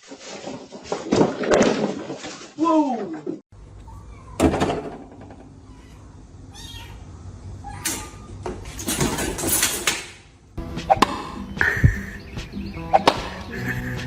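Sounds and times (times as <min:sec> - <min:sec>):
knocks and scuffling: 0:00.0 - 0:03.4
cat meowing: 0:05.6 - 0:07.0.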